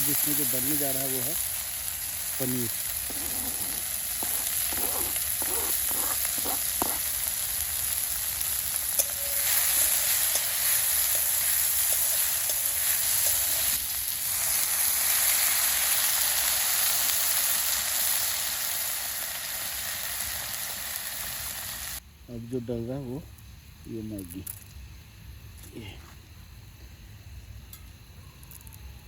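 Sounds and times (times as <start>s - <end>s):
vegetables sizzling in a pan: 0.0s - 22.0s.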